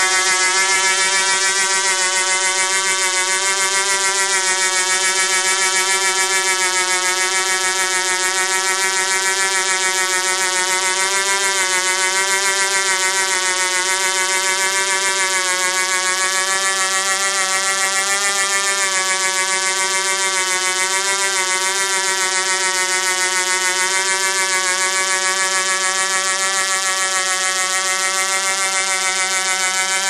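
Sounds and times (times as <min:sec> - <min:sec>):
rotor pulsing: 0:00.0 - 0:08.5
model helicopter engine buzzing: 0:00.0 - 0:30.0.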